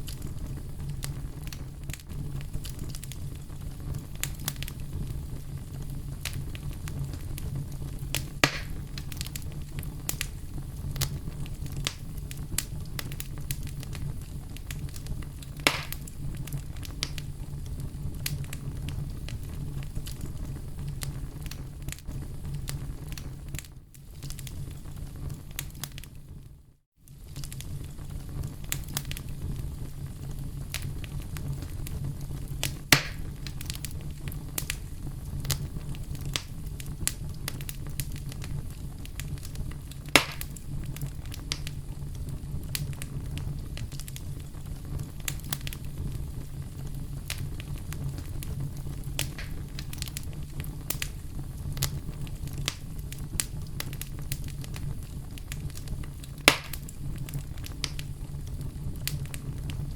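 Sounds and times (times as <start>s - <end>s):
loud sharp fire pops: 0.0s - 23.3s, 30.3s - 41.8s, 42.5s - 59.9s
campfire crackling and popping: 0.0s - 26.2s, 27.1s - 59.9s
low fire rumble: 0.0s - 59.9s.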